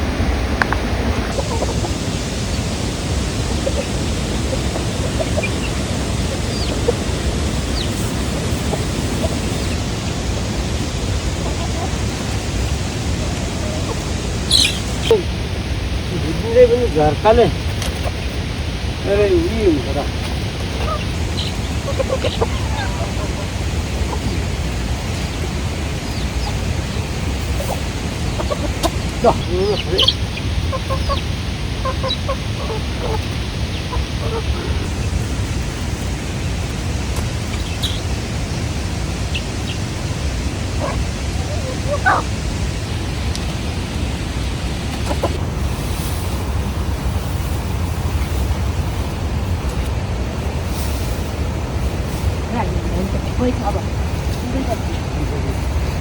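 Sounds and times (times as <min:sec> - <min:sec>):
rain hissing: 0:00.0 - 0:56.0
water rushing: 0:00.0 - 0:56.0
faint chicken chirps: 0:11.3 - 0:15.3, 0:20.1 - 0:35.1
faint high chirps: 0:13.6 - 0:15.4.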